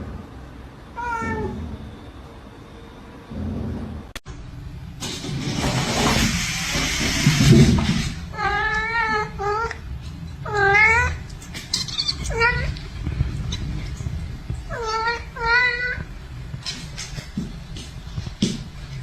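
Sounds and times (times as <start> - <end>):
cat meowing: 1.0 - 1.7, 10.4 - 11.2, 11.8 - 12.8, 14.7 - 16.1.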